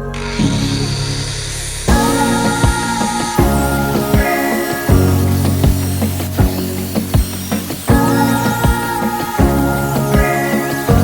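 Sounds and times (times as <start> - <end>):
music with sustained notes: 0.0 - 11.0
kick drum beat: 4.9 - 9.6.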